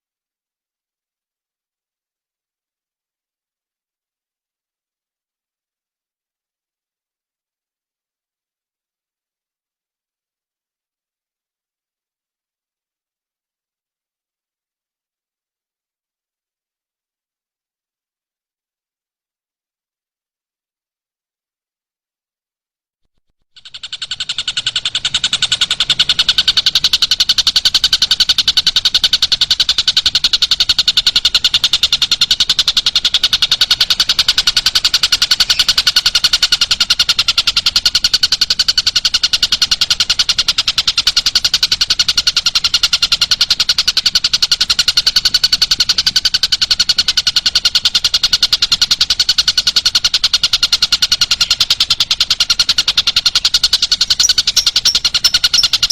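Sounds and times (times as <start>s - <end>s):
very fast high-pitched trill: 54.1s - 55.9s.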